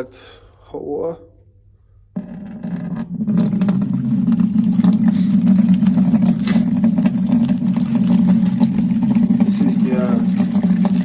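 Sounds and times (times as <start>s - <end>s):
water running from a tap into bucket: 2.4s - 11.0s
light water splashing: 3.3s - 11.0s.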